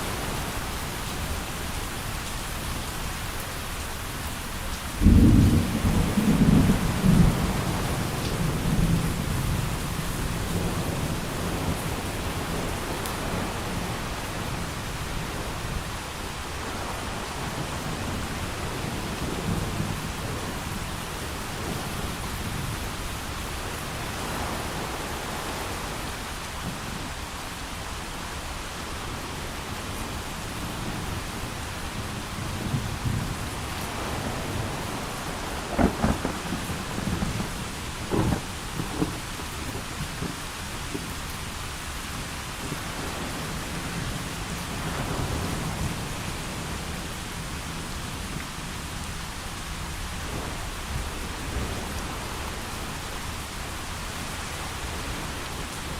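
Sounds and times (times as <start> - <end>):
heavy rain: 0.0 - 55.9
rolling thunder: 5.0 - 14.0, 32.0 - 41.0.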